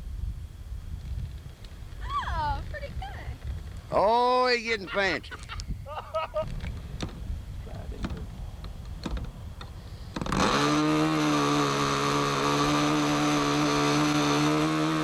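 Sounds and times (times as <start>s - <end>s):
model airplane engine running: 7.8s - 15.0s.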